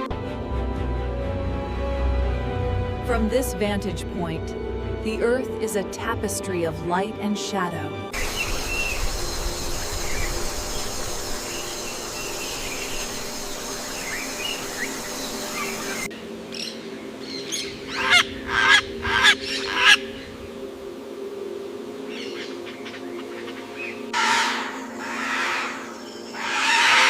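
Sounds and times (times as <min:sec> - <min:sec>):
steady hiss: 0:08.2 - 0:16.4
loud bird calls: 0:22.2 - 0:27.0.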